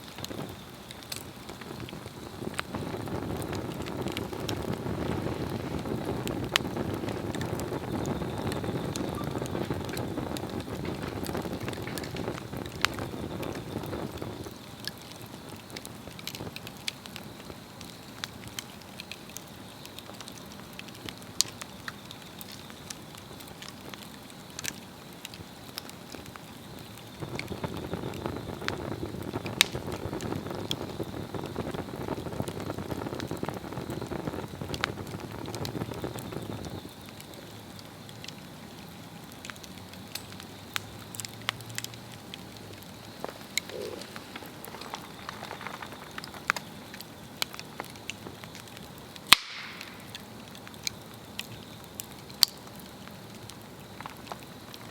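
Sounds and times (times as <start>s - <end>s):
log fire crackling: 0.0s - 54.9s.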